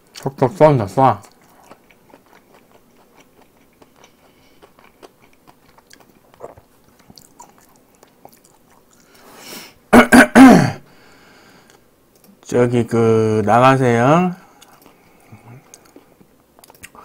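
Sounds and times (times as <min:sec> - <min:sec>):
person chewing: 0:01.2 - 0:09.4, 0:14.4 - 0:17.0
sharp intake of breath: 0:09.1 - 0:09.8, 0:10.8 - 0:11.7
wet mouth clicks: 0:16.6 - 0:17.0.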